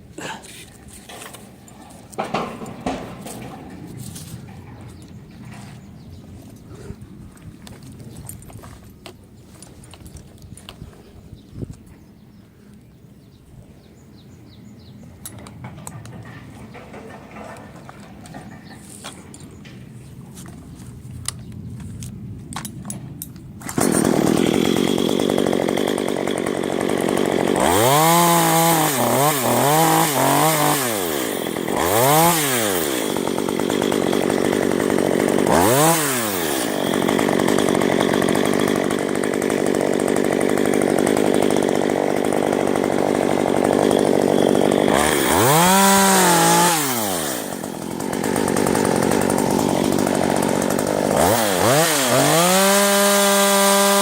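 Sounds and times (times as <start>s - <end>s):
chainsaw revving: 1.1s - 5.4s, 15.7s - 18.8s, 23.6s - 54.0s.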